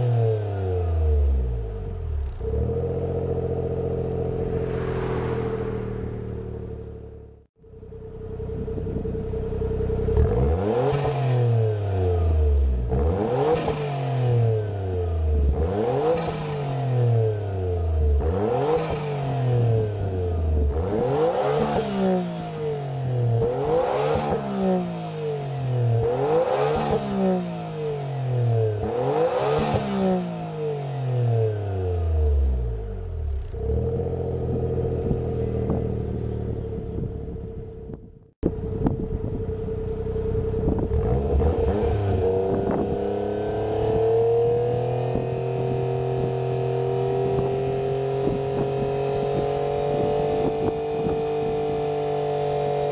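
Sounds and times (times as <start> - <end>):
car engine at steady speed: 0.0 - 52.9
car engine revving: 2.4 - 7.5, 9.6 - 17.3, 39.4 - 50.3.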